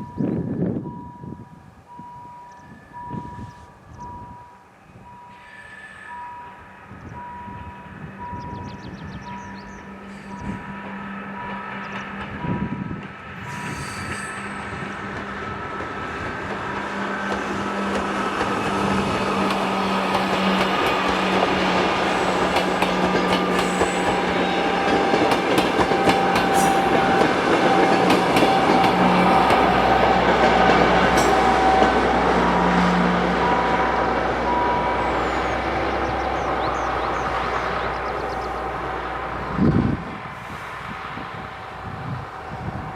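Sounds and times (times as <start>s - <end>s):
train wheel squeal: 5.1s - 16.3s, 17.3s - 37.2s
train wheels clattering over rails: 8.6s - 33.6s.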